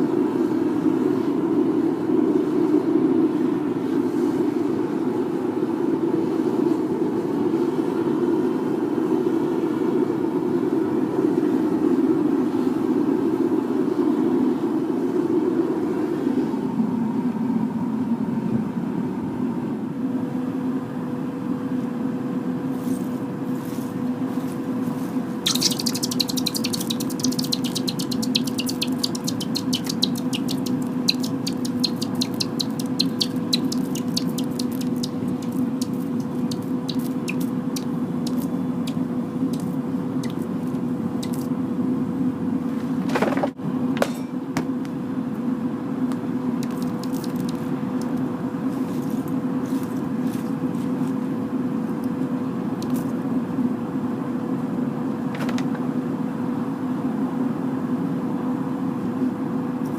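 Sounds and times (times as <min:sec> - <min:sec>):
furnace burner rushing and humming: 0:00.0 - 0:59.9
molten metal crackling in water: 0:25.4 - 0:37.5.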